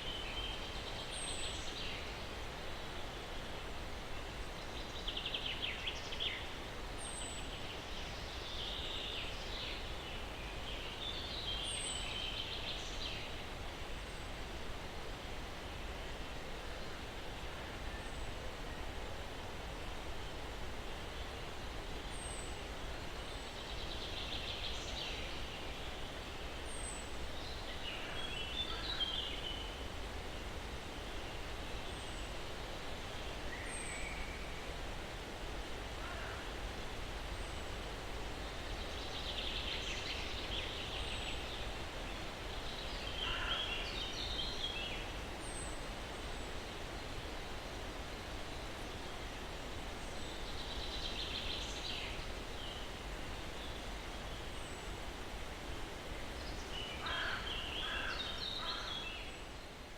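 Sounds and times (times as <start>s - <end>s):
breeze through pine trees: 0.0s - 59.9s.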